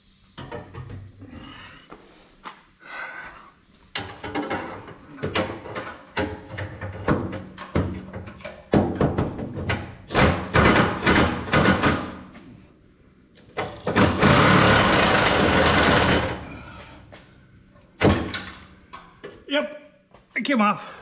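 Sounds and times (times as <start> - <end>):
loud steady mechanical noise: 14.1 - 16.4.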